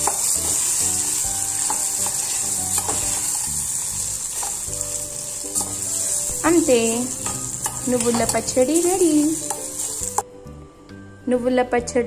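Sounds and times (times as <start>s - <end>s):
paste sizzling in hot oil: 0.0s - 10.2s
metal spoon scraping pan: 1.6s - 3.5s, 5.5s - 10.2s.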